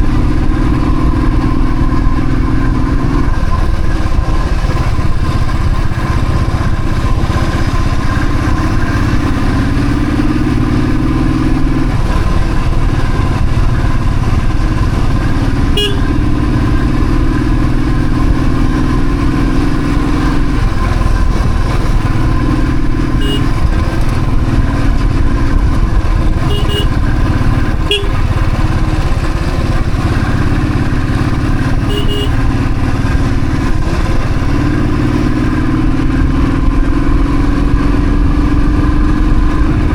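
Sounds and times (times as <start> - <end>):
motorcycle engine running: 0.0 - 39.9
wind rumble: 0.0 - 39.9
short horn beeps: 15.7 - 16.1, 23.1 - 23.6, 26.4 - 27.2, 27.8 - 28.2, 31.8 - 32.5.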